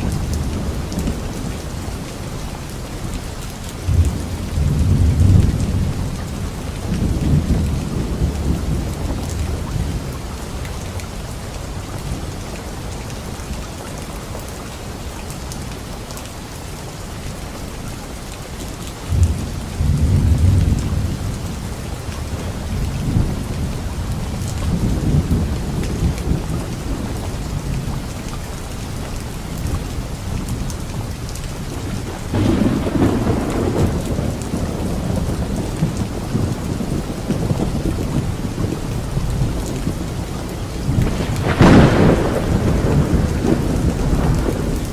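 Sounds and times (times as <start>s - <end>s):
rain falling on leaves: 0.0s - 44.9s
low thunder rolls: 3.8s - 10.2s, 19.1s - 28.2s, 31.8s - 44.9s
thunder crack: 32.0s - 39.8s, 40.9s - 44.9s.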